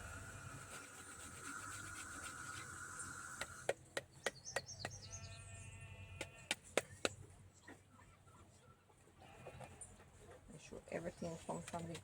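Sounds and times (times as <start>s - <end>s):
ginger scraping on hand grater: 0.6s - 3.5s.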